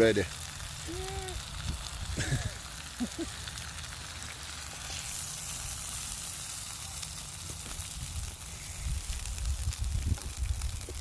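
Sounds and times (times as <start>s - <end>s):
steaks sizzling in a frying pan: 0.0s - 11.0s
wind rumble on microphone: 7.8s - 11.0s.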